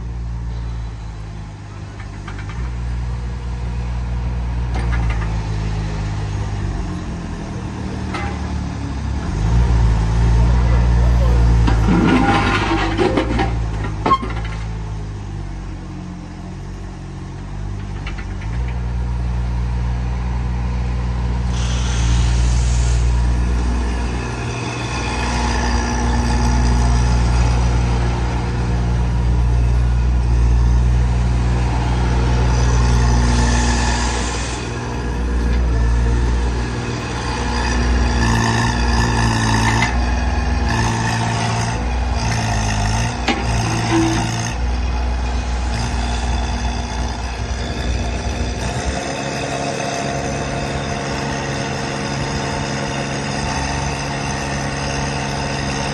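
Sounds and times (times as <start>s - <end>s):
excavator diesel engine running: 0.0s - 55.9s
brief hissing: 21.5s - 23.3s.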